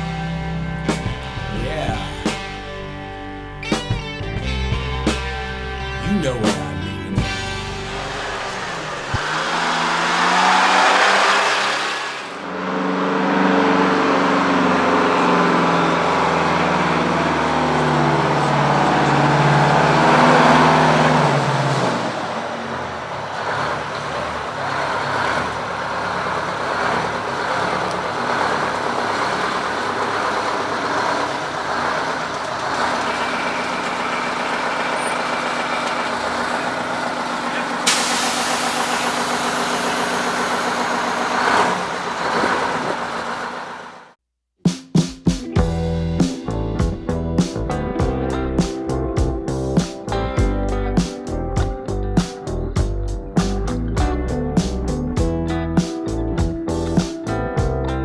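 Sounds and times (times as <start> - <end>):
rough pulsing engine rumble: 0.0 - 11.6, 12.2 - 44.2, 45.6 - 58.0
pitched engine drone: 0.0 - 44.2
hissing rush: 33.0 - 42.8.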